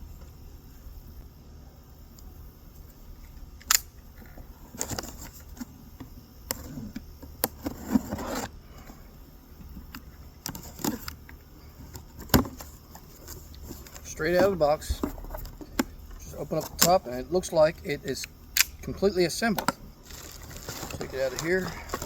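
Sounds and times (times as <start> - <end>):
cardboard scraping and rustling: 4.7 - 5.8, 6.6 - 8.6, 11.7 - 17.2, 19.4 - 22.0.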